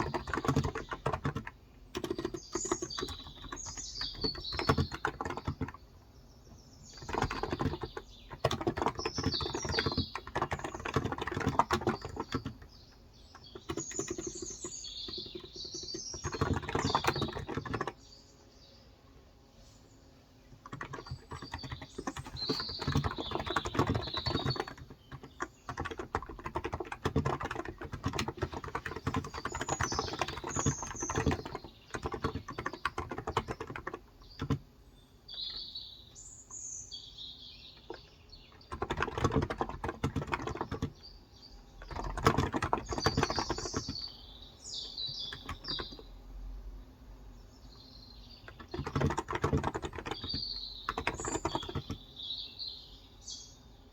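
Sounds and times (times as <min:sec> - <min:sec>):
soft keyboard keystrokes: 0:00.0 - 0:05.8, 0:06.9 - 0:18.0, 0:20.6 - 0:34.6, 0:37.8 - 0:41.1, 0:41.8 - 0:44.1, 0:45.1 - 0:46.1, 0:48.5 - 0:52.0
birds chirping: 0:00.0 - 0:53.9.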